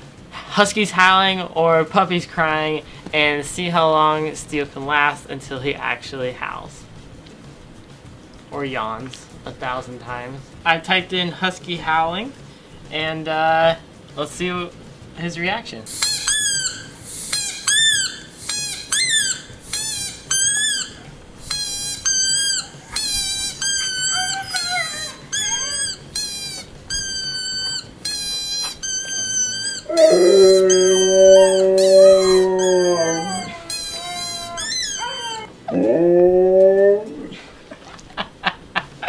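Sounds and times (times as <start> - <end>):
recorded howls through speaker: 15.3 - 37.5
dog howling: 20.4 - 37.4.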